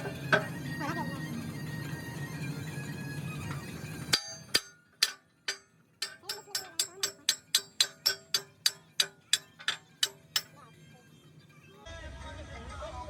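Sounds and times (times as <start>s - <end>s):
hammer striking metal: 4.1s - 10.8s.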